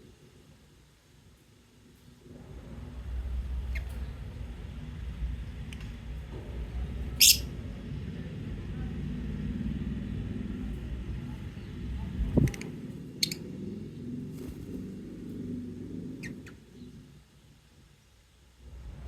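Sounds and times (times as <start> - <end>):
low rumble: 2.2 - 17.3
lovebird chirps: 7.1 - 7.5.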